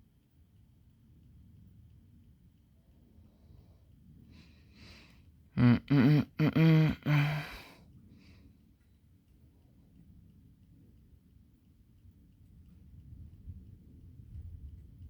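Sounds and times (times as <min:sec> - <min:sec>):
man's wordless vocal sounds: 0:05.6 - 0:07.7
man breathing: 0:06.6 - 0:08.4.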